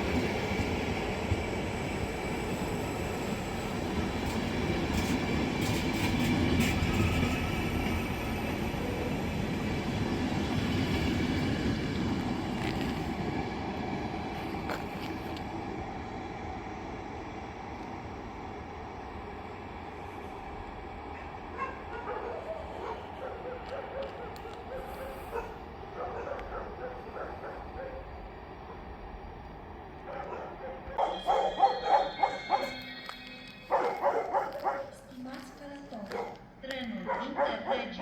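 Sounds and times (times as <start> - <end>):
train wheels rumbling and clicking: 0.0 - 16.5.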